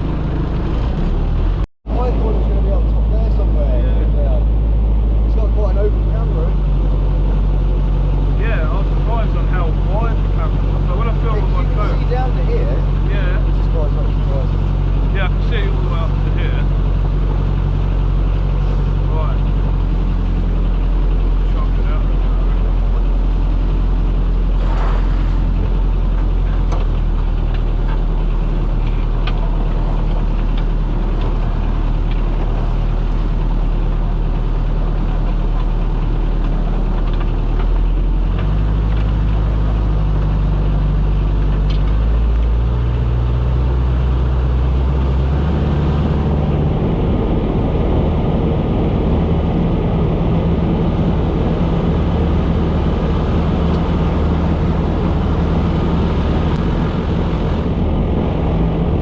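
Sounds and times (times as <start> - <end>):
motorboat engine droning: 0.0 - 59.0
wind: 0.0 - 59.0
water rushing: 24.5 - 25.9.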